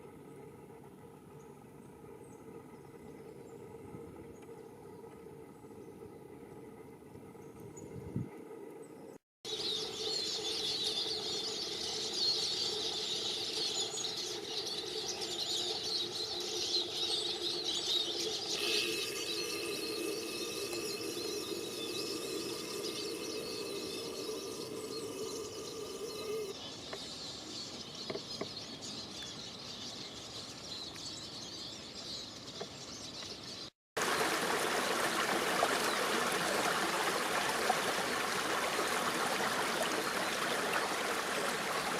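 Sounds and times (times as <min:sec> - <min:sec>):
birds calling and chirping: 0:08.8 - 0:33.7
stream rushing: 0:34.0 - 0:41.9.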